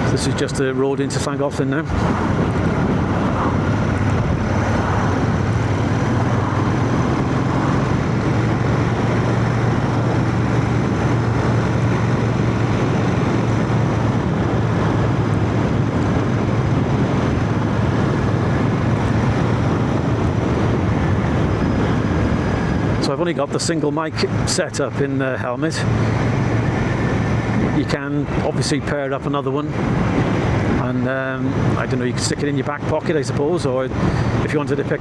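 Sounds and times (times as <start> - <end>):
motorcycle engine cruising: 0.0 - 24.4, 25.0 - 28.4
road noise: 0.0 - 35.0
wind noise: 0.0 - 35.0.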